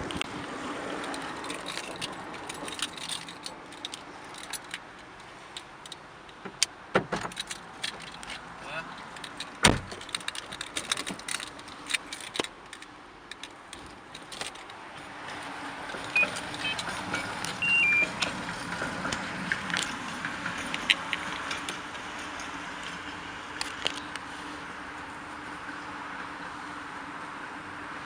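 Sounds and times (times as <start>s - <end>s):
keys jangling: 1.0s - 4.8s, 9.0s - 13.5s
short electronic beeps: 16.2s - 18.2s
clicks: 16.2s - 18.4s.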